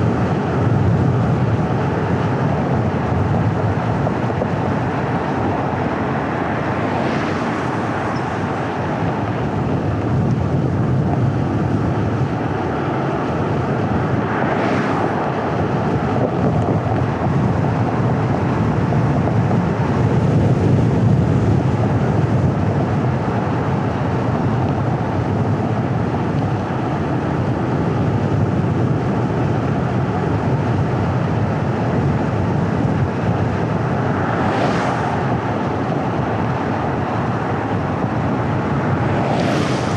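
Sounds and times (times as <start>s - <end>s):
low engine hum: 0.0s - 39.9s
tyre and road noise: 0.0s - 39.9s
wind rush: 0.0s - 39.9s.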